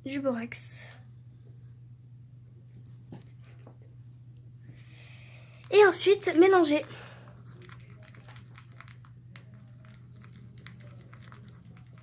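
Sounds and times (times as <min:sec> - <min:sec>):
utensil stirring slime: 0:05.7 - 0:12.0.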